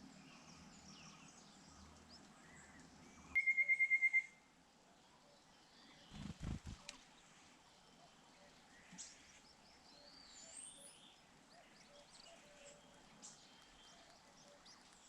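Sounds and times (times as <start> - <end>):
background hiss: 0.0 - 15.0
faint birdsong: 0.0 - 15.0.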